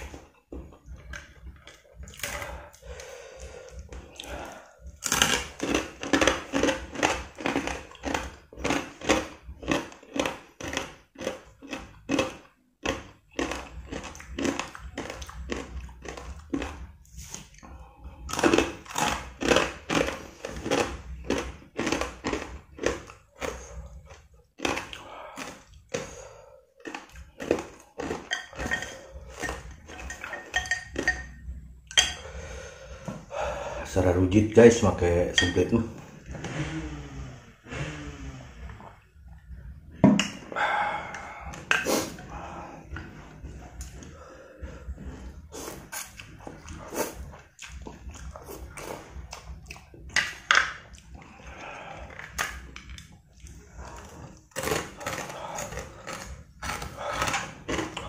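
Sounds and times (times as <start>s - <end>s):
chewing crunchy rice crackers: 0.0s - 31.1s, 40.9s - 58.0s.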